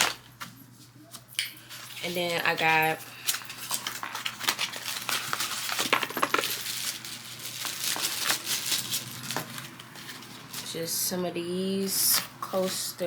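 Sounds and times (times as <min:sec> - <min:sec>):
packaging clicks and crinkles: 0:00.0 - 0:00.4, 0:01.7 - 0:10.7.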